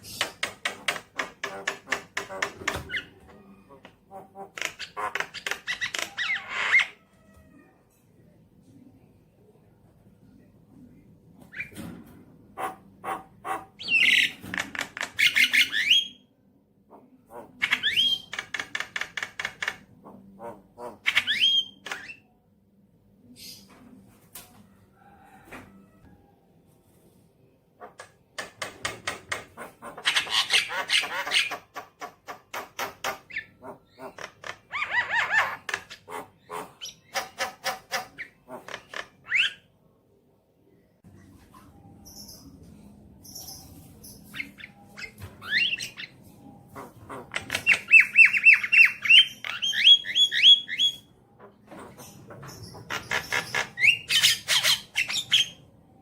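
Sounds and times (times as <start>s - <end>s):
harsh clicking rattles and chatter: 18.1s - 20.0s, 28.3s - 30.3s
bird singing: 41.7s - 55.7s.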